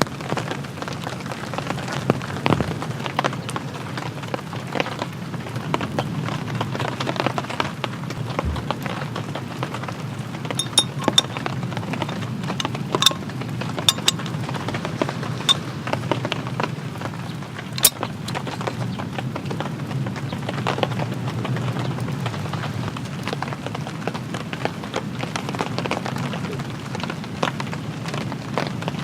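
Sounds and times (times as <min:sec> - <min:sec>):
rain pattering: 0:00.0 - 0:29.0
raindrops ticking sharply: 0:00.1 - 0:26.0.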